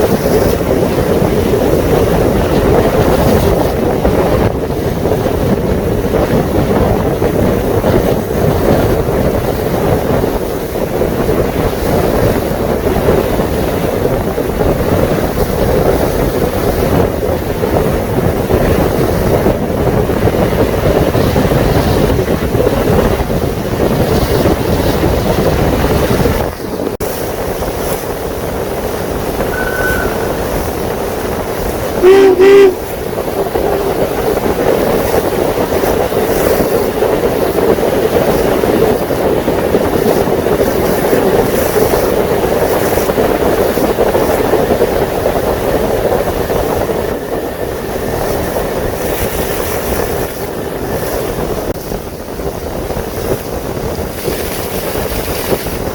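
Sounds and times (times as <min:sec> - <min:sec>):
boat engine hum: 0:00.0 - 0:55.9
wind buffeting microphone: 0:00.0 - 0:55.9
horn blast: 0:29.4 - 0:31.1, 0:32.0 - 0:32.9.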